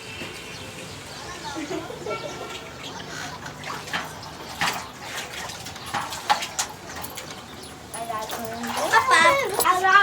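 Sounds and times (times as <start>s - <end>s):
water splashing in pool: 2.2s - 10.0s.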